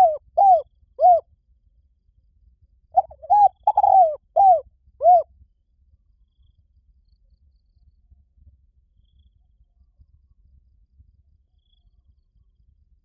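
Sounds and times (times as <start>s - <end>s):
dove cooing: 0.0s - 1.2s, 3.0s - 5.2s.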